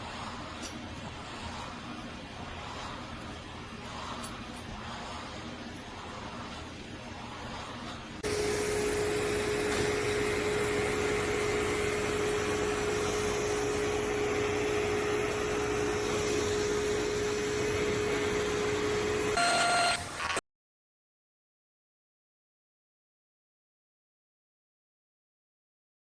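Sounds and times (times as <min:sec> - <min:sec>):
vacuum motor humming: 0:03.7 - 0:20.3.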